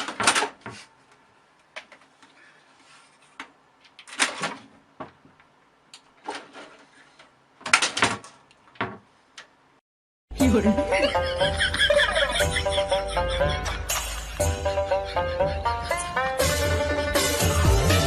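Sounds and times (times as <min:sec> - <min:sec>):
scraping or rustling: 0:06.2 - 0:07.3.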